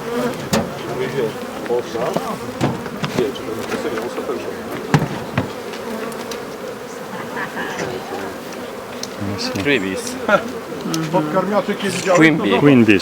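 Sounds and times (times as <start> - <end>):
honeybees buzzing: 0.0 - 13.0
sharp knocks: 0.4 - 1.0, 2.0 - 4.1, 4.7 - 5.8.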